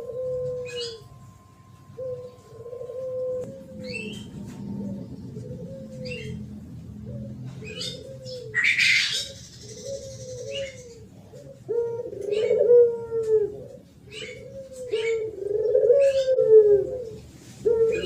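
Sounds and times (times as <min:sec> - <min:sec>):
small birds chirping: 0:00.0 - 0:12.6
dove cooing: 0:00.0 - 0:18.0.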